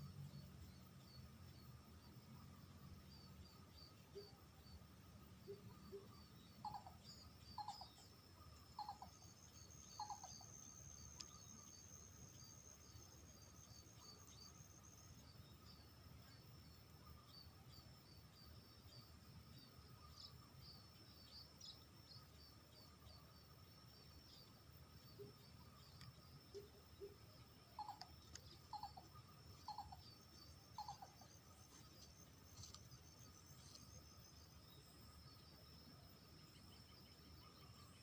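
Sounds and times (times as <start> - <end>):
insects chirping: 0.0 - 38.0
high insect buzz: 19.6 - 38.0.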